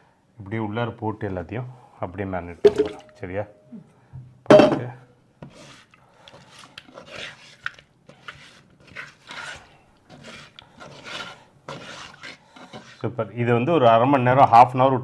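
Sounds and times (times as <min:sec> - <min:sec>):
hands rubbing fish in a bowl: 0:05.4 - 0:13.1.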